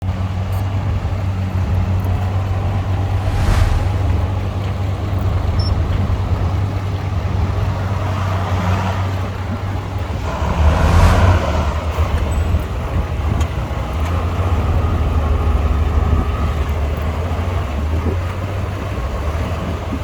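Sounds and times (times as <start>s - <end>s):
brief hiss: 2.9s - 4.6s.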